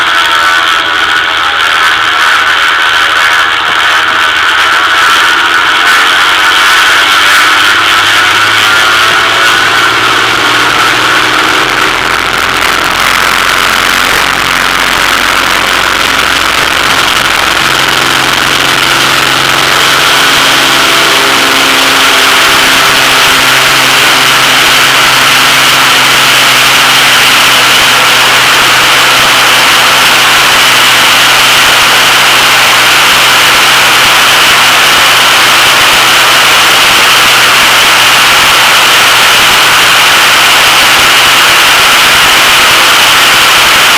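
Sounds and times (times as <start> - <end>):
plane engine and propeller drone: 0.0 - 43.9.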